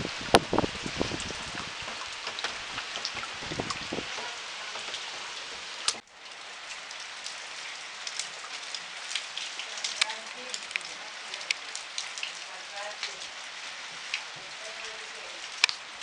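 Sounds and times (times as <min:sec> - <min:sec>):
wind rumble on microphone: 0:00.0 - 0:04.4
heavy rain on paving: 0:00.0 - 0:16.0
raindrops tapping: 0:00.0 - 0:16.0.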